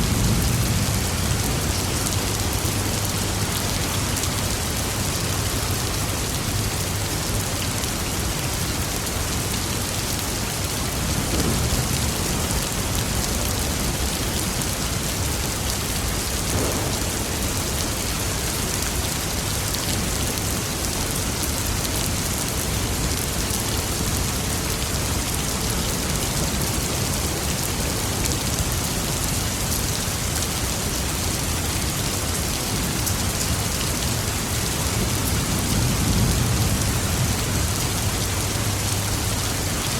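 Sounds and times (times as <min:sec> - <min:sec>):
low rumble of thunder: 0:00.0 - 0:05.3, 0:10.7 - 0:20.2, 0:34.0 - 0:39.8
steady rain falling: 0:00.0 - 0:39.9.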